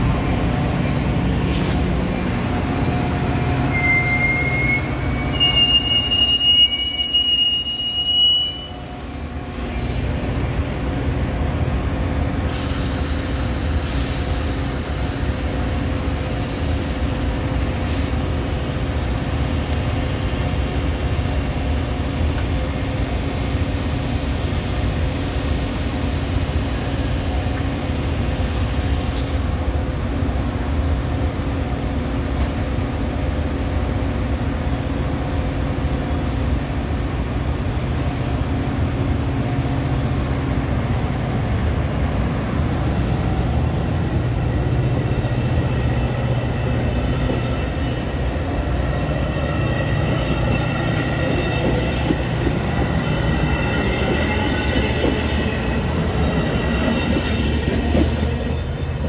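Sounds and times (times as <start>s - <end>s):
train rumbling past: 0.0s - 59.0s
steel wheels squealing: 3.6s - 8.8s, 44.9s - 59.0s
hiss: 12.4s - 18.9s.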